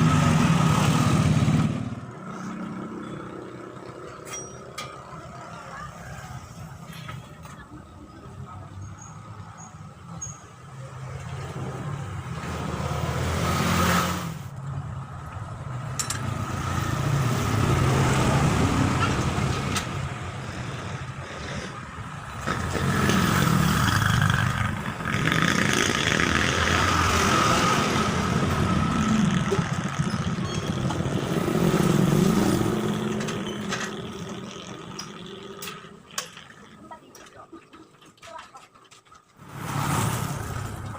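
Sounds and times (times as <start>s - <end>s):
engine running with high whine: 22.3s - 36.0s.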